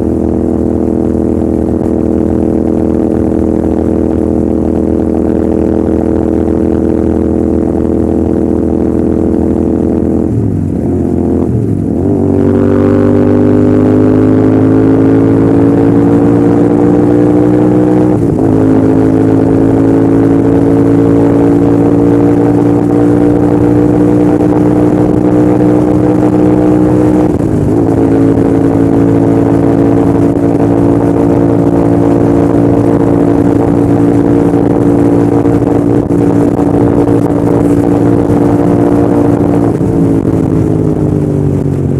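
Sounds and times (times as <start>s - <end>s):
motorcycle engine running: 0.0s - 41.9s
wind rush: 23.3s - 41.9s.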